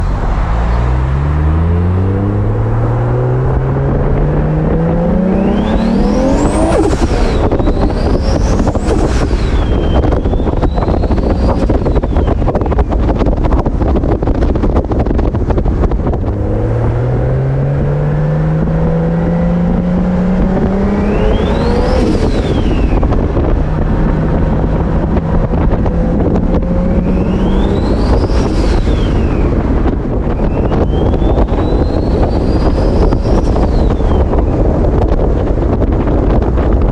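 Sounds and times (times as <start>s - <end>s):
car engine accelerating: 0.0s - 36.9s
wind noise on microphone: 0.0s - 36.9s
turbo whistle: 27.0s - 29.3s.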